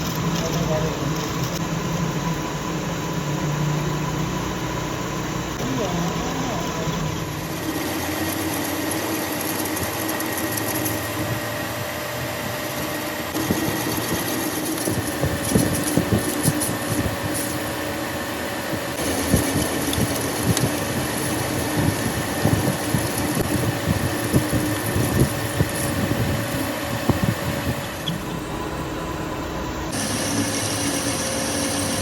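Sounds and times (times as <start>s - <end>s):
rapid clicks and crackles: 0.0s - 2.2s, 5.6s - 11.2s, 13.3s - 17.9s, 18.7s - 28.1s
workshop machine humming: 0.0s - 32.0s.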